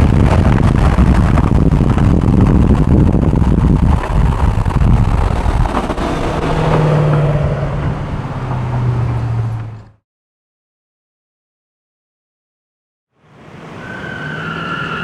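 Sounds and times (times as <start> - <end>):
road and wind noise: 0.0 - 10.0, 13.2 - 15.0
truck engine rumbling: 0.0 - 10.0.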